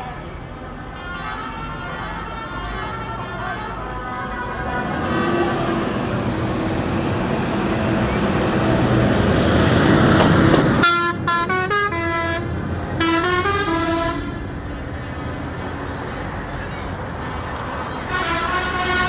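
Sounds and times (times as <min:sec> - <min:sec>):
heavy vehicle engine running: 0:00.0 - 0:19.0
musical horn notes: 0:09.7 - 0:15.2, 0:18.1 - 0:19.0.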